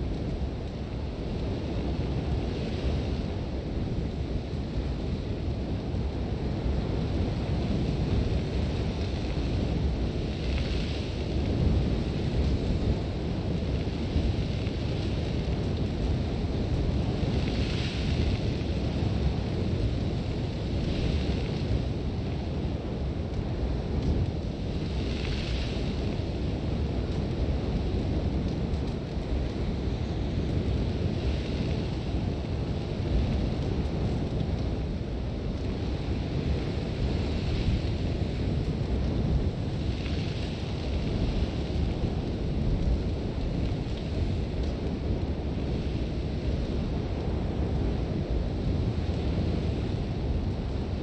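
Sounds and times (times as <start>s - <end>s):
strong wind rumbling: 0.0s - 51.0s.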